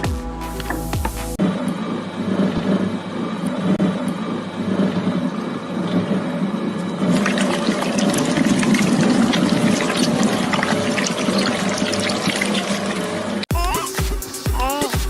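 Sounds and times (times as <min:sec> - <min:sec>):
shredder chewing watermelon: 0:03.5 - 0:13.5.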